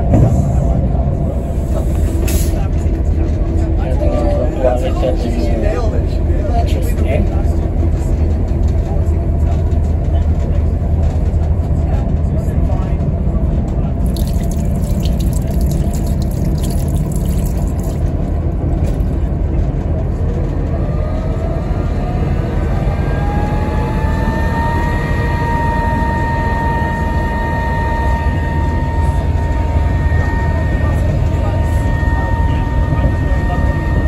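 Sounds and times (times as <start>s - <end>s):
train rumble: 0.0s - 34.0s
tap water splashing on hands: 14.0s - 18.1s.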